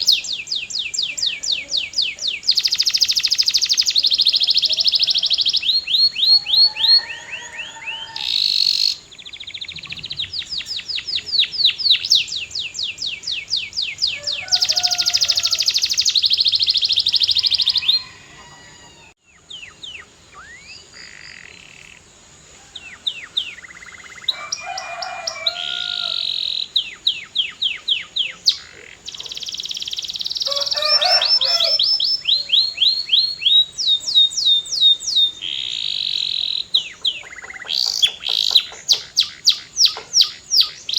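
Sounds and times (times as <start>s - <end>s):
canary singing rapid trills: 0.0s - 18.4s, 22.8s - 40.9s.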